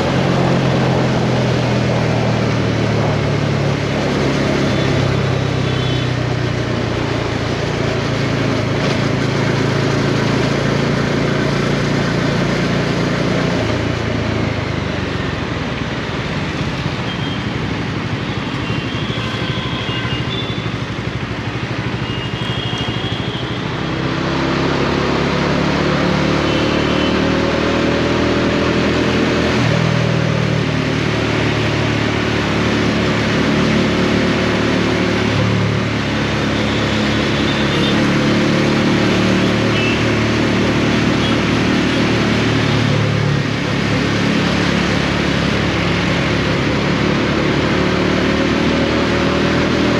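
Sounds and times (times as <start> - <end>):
motorcycle engine accelerating: 0.0 - 15.4, 23.7 - 49.9.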